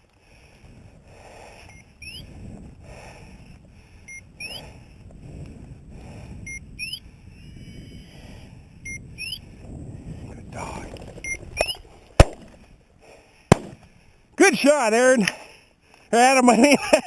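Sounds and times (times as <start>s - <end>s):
beeper collar beep and chirp: 4.1s - 4.7s, 6.5s - 8.1s, 8.8s - 9.4s
low rustling: 9.5s - 14.4s.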